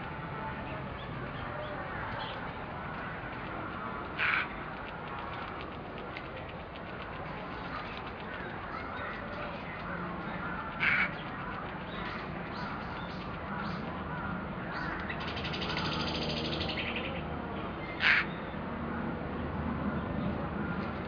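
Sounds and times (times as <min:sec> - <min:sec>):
steady background noise: 0:00.0 - 0:21.0
crow cawing: 0:02.9 - 0:04.6, 0:07.7 - 0:15.2, 0:18.0 - 0:18.3.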